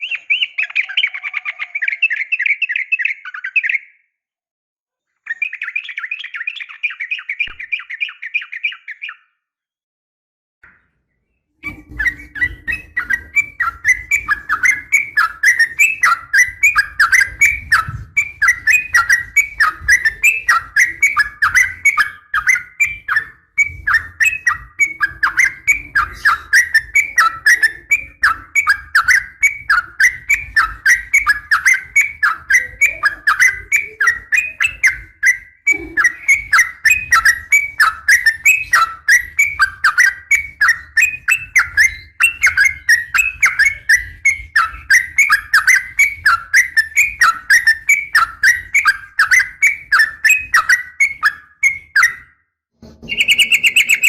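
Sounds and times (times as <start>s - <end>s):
bird chattering call: 53.0s - 54.0s.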